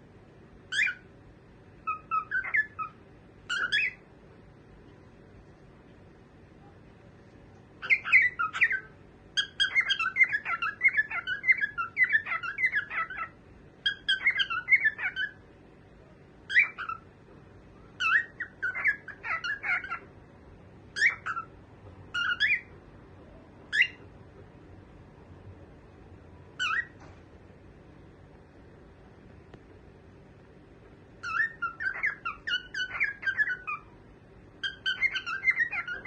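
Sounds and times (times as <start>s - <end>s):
cockatiel chirping and whistling: 0.7s - 1.1s, 1.8s - 4.0s, 7.8s - 15.4s, 16.5s - 17.0s, 17.9s - 20.1s, 20.9s - 22.7s, 23.7s - 24.0s, 26.6s - 27.0s, 31.2s - 33.9s, 34.6s - 36.0s.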